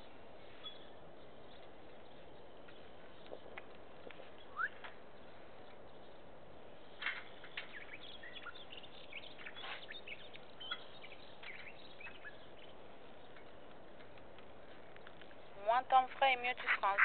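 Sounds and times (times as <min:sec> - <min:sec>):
outdoor background hiss: 0:00.0 - 0:17.0
small birds chirping: 0:00.0 - 0:17.0.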